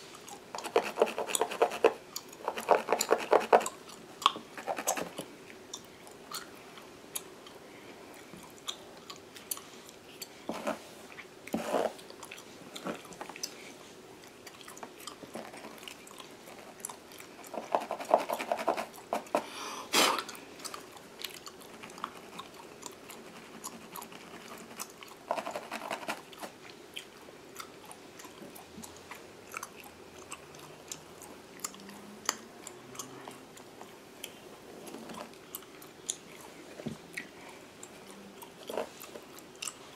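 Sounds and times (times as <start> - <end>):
fingernails scratching hair: 0.6 - 3.6, 4.6 - 5.1, 25.3 - 26.3
gum chewing smacks: 1.3 - 7.6, 8.2 - 10.3, 20.2 - 25.3, 26.2 - 39.9.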